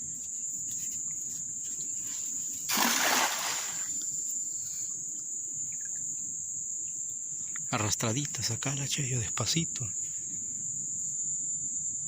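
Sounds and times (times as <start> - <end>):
crickets chirring: 0.0 - 12.0
fishing net splashing into water: 2.7 - 4.0.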